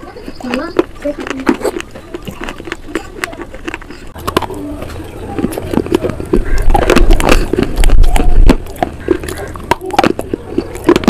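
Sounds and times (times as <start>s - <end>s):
crackling crunches of eating: 0.0s - 11.0s
wet mouth clicks: 0.3s - 11.0s.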